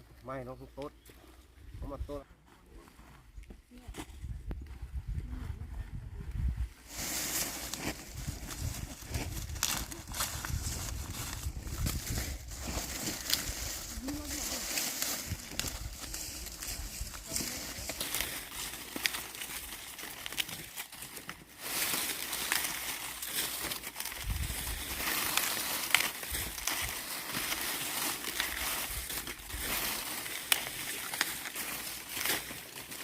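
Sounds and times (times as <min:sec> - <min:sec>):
dry corn leaves rustling: 0:06.8 - 0:33.0.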